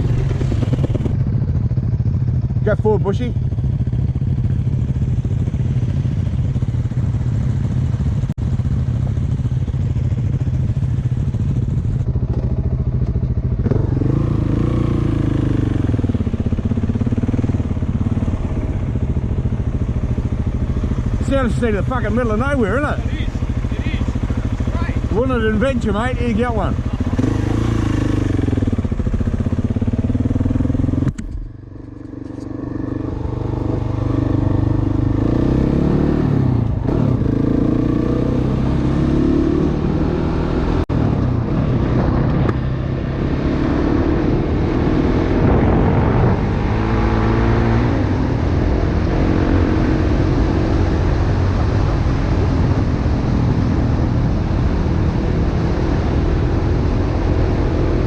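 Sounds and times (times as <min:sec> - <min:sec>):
dirt bike engine revving: 0:13.5 - 0:40.8, 0:41.8 - 0:52.6.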